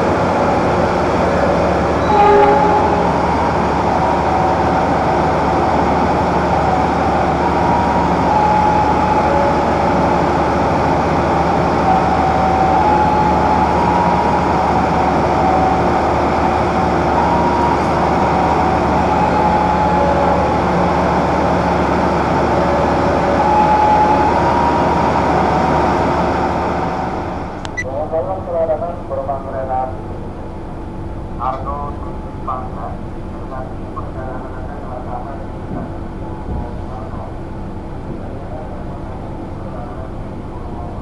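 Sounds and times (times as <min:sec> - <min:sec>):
high metallic squeals: 0:02.0 - 0:04.7
train wheels rumbling on rails: 0:29.9 - 0:41.0.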